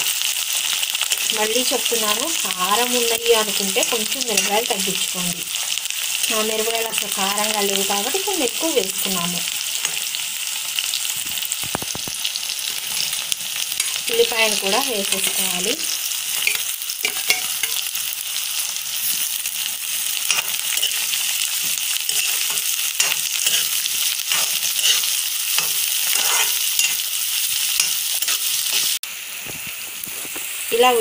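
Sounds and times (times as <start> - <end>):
onions sizzling in oil: 0.0 - 31.0
metal spatula scraping pan: 20.2 - 27.1.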